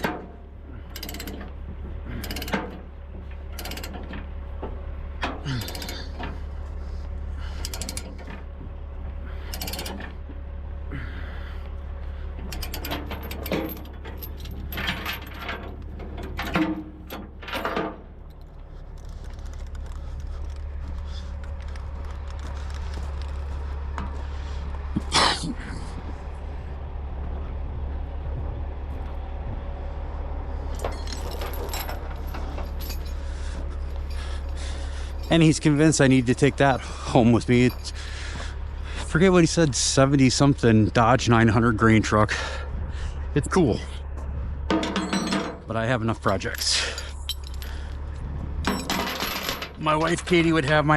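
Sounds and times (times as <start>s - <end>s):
steady low hum: 0.0s - 50.9s
metal chains clicking and clanking: 0.9s - 2.9s, 3.5s - 4.3s, 5.3s - 6.4s, 7.6s - 8.4s, 9.4s - 10.2s, 12.5s - 21.3s, 30.7s - 38.4s, 44.7s - 48.0s, 48.6s - 50.9s.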